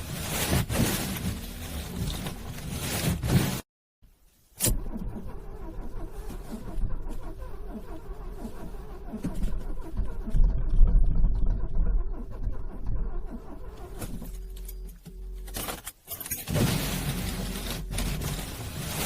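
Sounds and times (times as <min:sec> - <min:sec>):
car starter cranking engine: 0:04.6 - 0:15.5.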